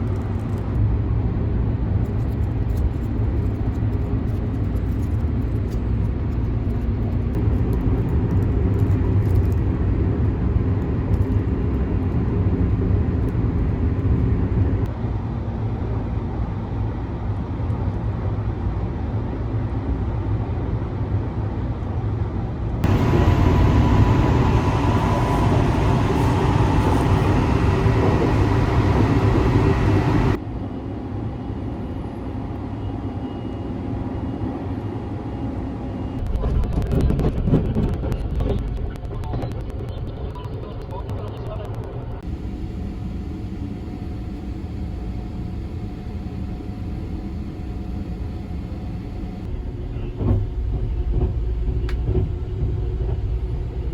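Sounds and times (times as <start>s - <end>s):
train rumble: 0.0s - 16.5s, 22.1s - 30.5s, 35.8s - 53.9s.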